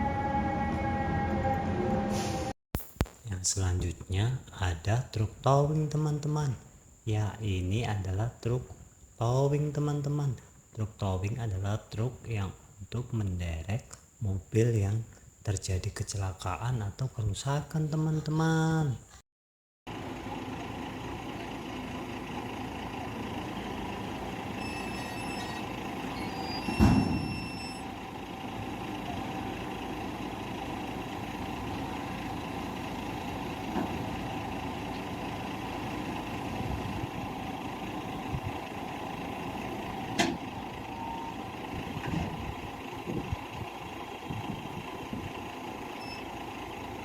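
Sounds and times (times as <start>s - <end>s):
truck engine running: 19.9s - 47.0s.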